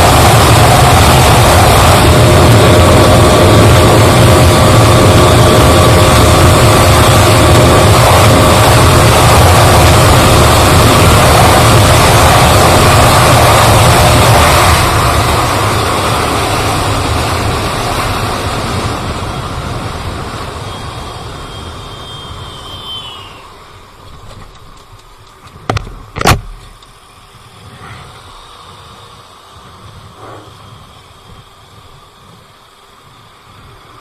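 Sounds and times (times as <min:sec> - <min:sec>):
wind blast on microphone: 0:00.0 - 0:23.5
motorcycle engine at speed: 0:00.0 - 0:26.9, 0:27.5 - 0:33.7
sharp knocks: 0:25.6 - 0:26.8.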